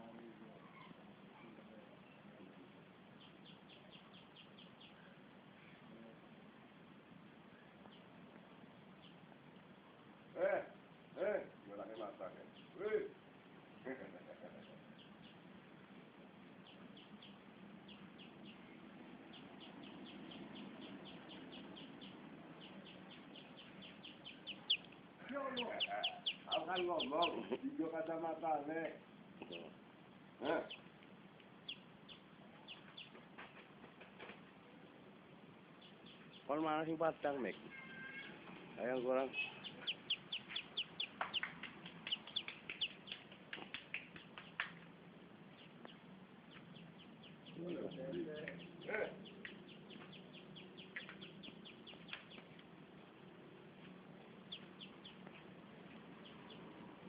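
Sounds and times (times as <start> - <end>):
low steady hum: 0.0 - 57.0
bird chirping: 3.1 - 5.8, 8.9 - 9.7, 11.8 - 12.8, 13.7 - 28.2, 30.4 - 33.5, 35.7 - 44.8, 45.5 - 57.0.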